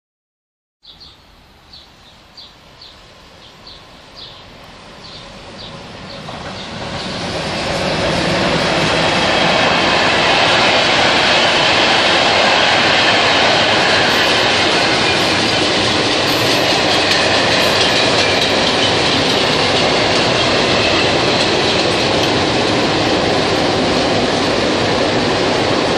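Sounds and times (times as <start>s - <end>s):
bird chirping: 0.8s - 7.2s
freight train passing: 1.0s - 25.9s.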